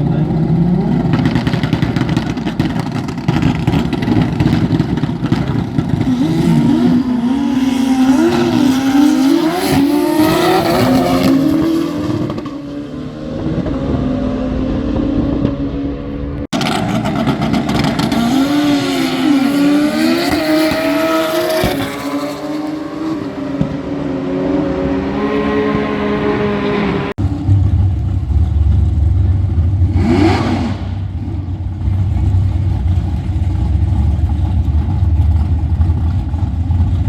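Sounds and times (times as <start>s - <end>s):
racing engine revving: 0.0s - 36.4s.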